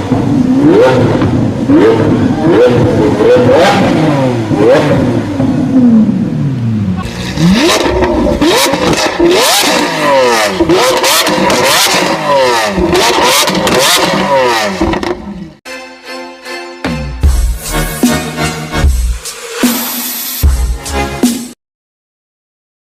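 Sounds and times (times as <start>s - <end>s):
car engine revving: 0.0s - 15.6s.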